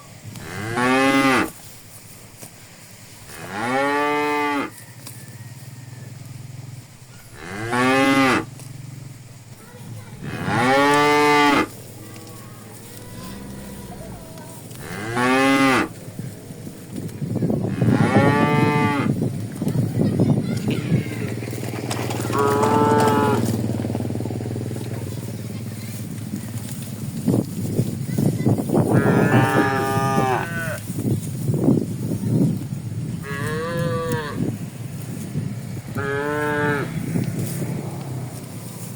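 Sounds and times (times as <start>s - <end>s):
cows mooing: 0.4s - 1.5s, 3.3s - 4.7s, 7.3s - 8.7s, 10.2s - 16.8s, 17.6s - 19.2s, 22.2s - 24.2s, 28.9s - 30.8s, 33.2s - 34.6s, 35.9s - 38.4s
low uneven clatter: 19.4s - 27.6s.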